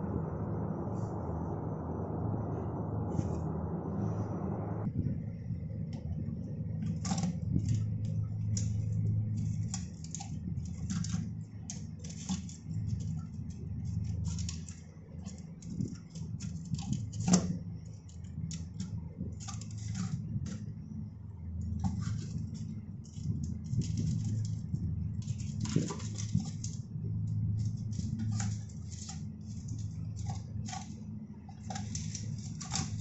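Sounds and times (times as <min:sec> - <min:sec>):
steady low hum: 0:00.0 - 0:33.0
parts clicking and clattering: 0:06.8 - 0:20.8, 0:21.6 - 0:33.0.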